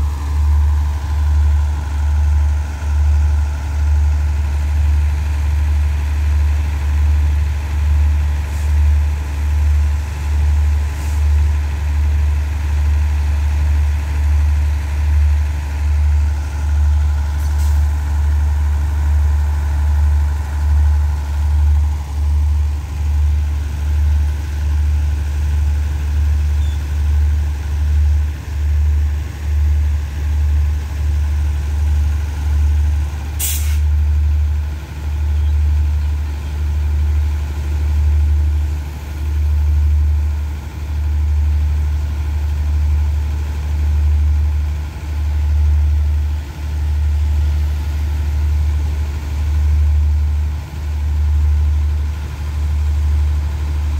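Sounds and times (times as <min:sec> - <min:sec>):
diesel train idling rumble: 0:00.0 - 0:53.9
hiss of released air: 0:33.4 - 0:33.9.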